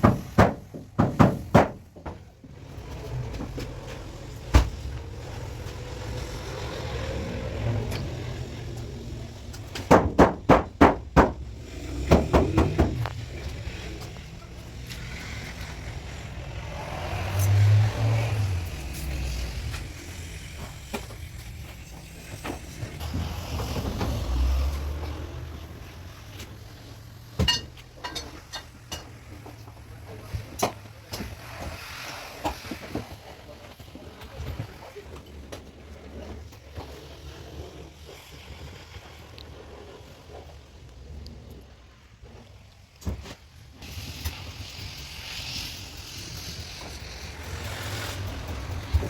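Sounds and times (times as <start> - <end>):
runs of sharp knocks: 0.0 - 2.2, 9.8 - 11.4, 12.0 - 13.1.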